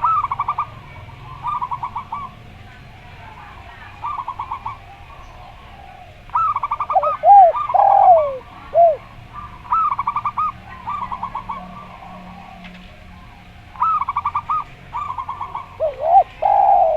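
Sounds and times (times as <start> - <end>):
lower rounded dove coos: 0.0 - 2.4, 3.9 - 16.9
dove cooing in stuttering runs: 6.4 - 9.0, 15.8 - 16.9.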